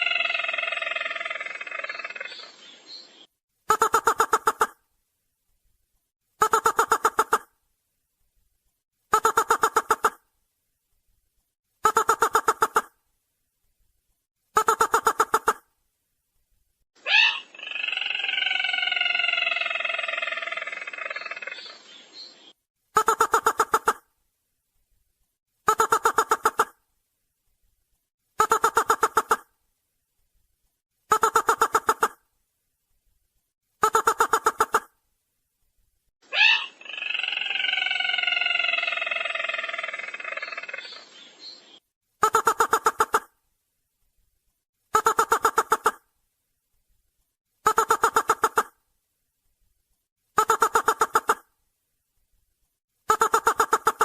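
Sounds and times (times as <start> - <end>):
bird trilled call: 0.0 - 3.3, 17.0 - 22.6, 36.3 - 41.8.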